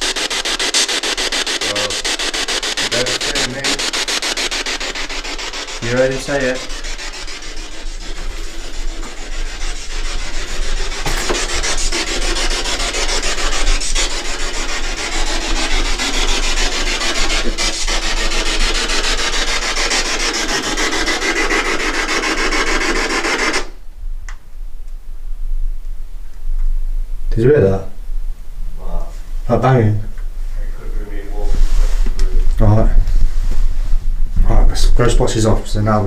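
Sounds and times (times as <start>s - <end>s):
chopped radio static hiss: 0.0s - 7.2s.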